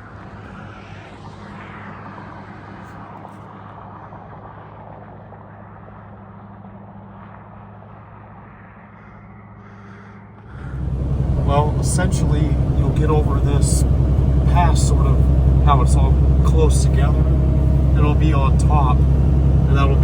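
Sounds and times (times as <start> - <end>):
road and tyre noise: 0.0 - 20.0
truck engine droning: 10.4 - 20.0.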